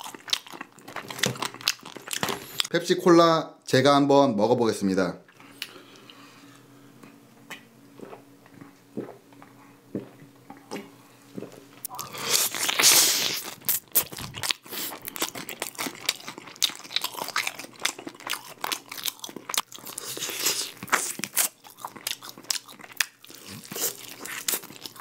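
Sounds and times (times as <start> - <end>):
crunching and chewing chicken: 0.0 - 2.7, 11.4 - 25.0.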